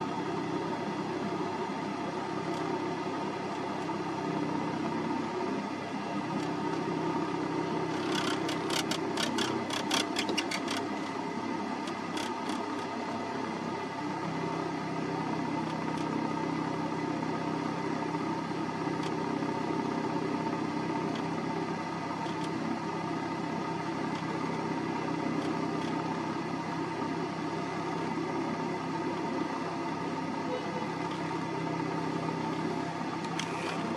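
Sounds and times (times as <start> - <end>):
car engine running: 0.0 - 33.9
sharp clicks: 8.0 - 10.9.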